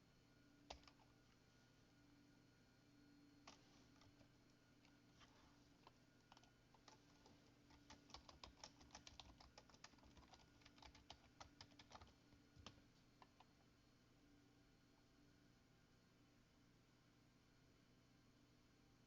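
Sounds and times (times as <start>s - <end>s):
faint keyboard typing: 0.6s - 1.4s, 3.4s - 13.7s.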